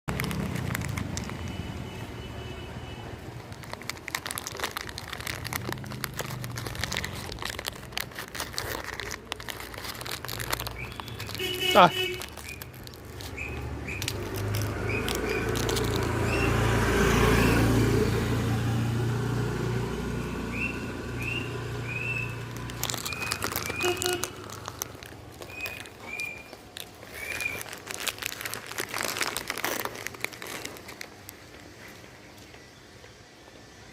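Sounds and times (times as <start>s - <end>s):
dog crunching biscuits: 0.1s - 2.2s, 3.1s - 18.8s, 19.4s - 32.0s
small birds chirping: 10.3s - 17.6s, 20.4s - 28.2s
vehicle engine passing: 12.7s - 26.0s.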